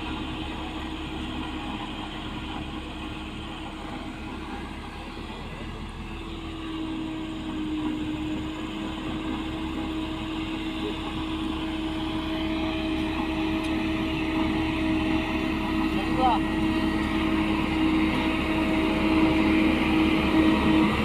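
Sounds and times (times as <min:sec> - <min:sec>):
construction machine engine droning: 0:00.0 - 0:21.0.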